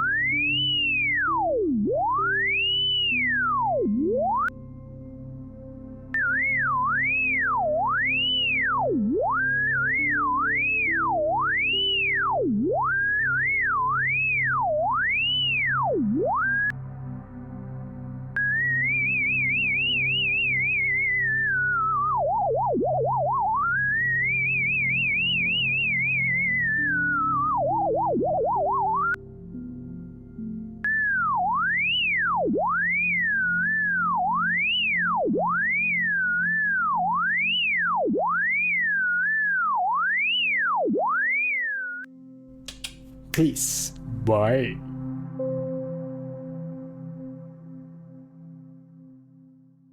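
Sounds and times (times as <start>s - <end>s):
soft background music: 0.0s - 22.9s, 23.5s - 38.3s.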